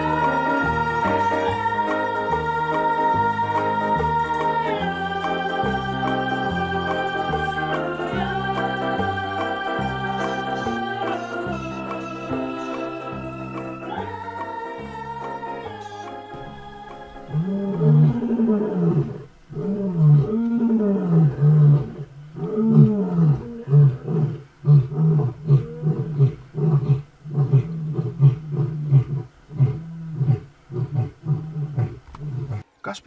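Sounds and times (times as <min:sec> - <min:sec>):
lion grunting: 0:17.3 - 0:32.6
lion roaring: 0:17.3 - 0:32.6.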